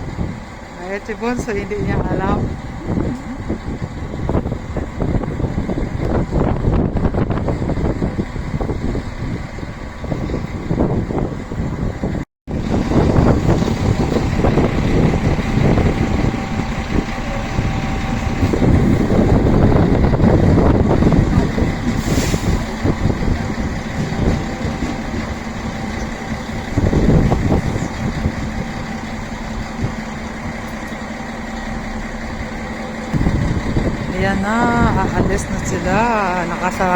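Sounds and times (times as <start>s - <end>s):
train idling hum: 0.0s - 36.9s
wind buffeting microphone: 0.0s - 36.9s.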